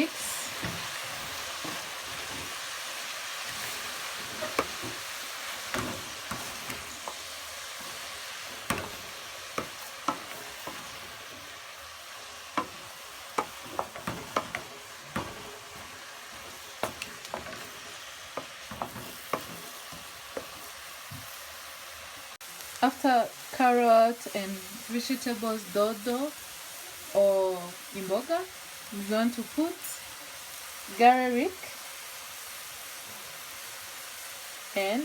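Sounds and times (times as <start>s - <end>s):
vegetables sizzling in hot oil: 0.0s - 35.0s
utensil knocking against pan: 5.7s - 7.2s, 7.8s - 11.4s, 12.6s - 20.6s.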